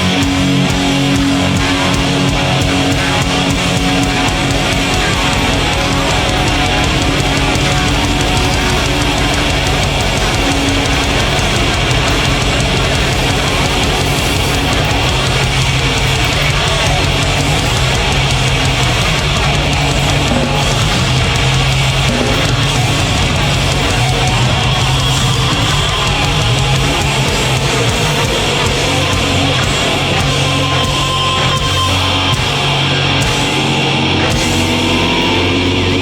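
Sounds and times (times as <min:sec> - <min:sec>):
metal band playing live: 0:00.0 - 0:36.0.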